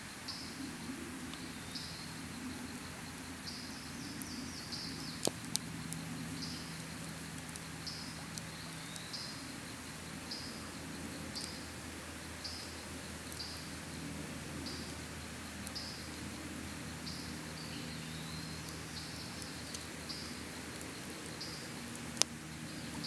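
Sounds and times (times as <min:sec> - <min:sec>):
campfire crackling: 0:00.0 - 0:23.0
airplane drone: 0:09.2 - 0:23.0.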